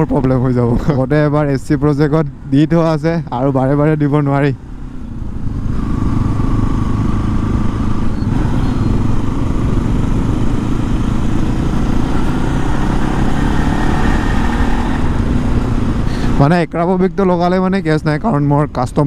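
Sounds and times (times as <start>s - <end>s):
motorcycle engine running: 4.6s - 16.4s.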